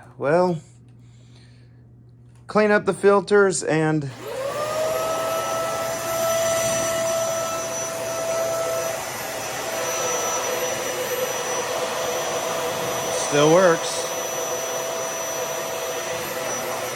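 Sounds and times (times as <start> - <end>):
vacuum cleaner motor whine: 4.1 - 16.9.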